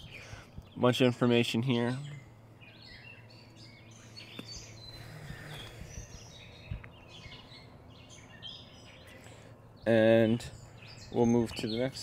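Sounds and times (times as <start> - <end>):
birds chirping: 0.0 - 12.0
low steady hum: 0.0 - 12.0.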